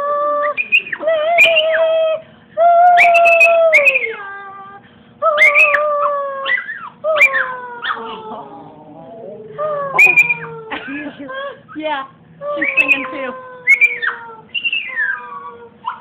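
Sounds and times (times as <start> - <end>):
dog howling: 5.2 - 11.6, 12.4 - 16.0.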